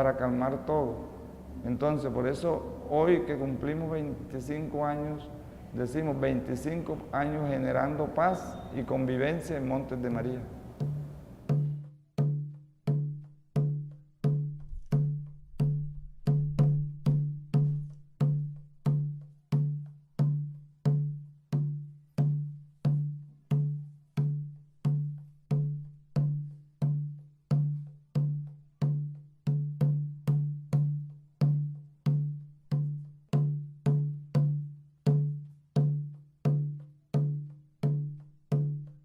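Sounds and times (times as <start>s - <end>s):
drum beating steadily: 9.6s - 39.0s.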